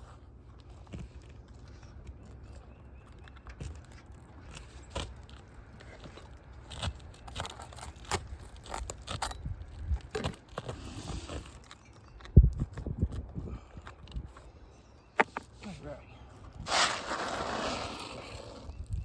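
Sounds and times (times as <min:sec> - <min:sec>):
roofing shingle scraping: 0:00.4 - 0:12.0, 0:16.4 - 0:19.0.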